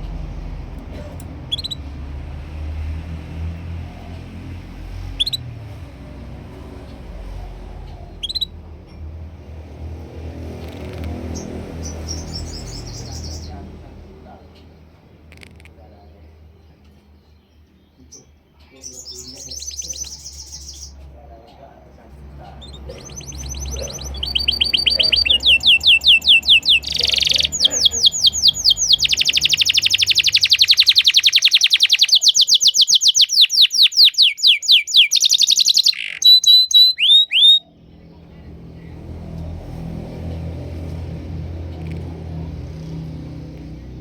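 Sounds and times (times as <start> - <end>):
low rumble: 0.0 - 15.8
canary singing trills: 0.0 - 21.7, 22.4 - 39.0.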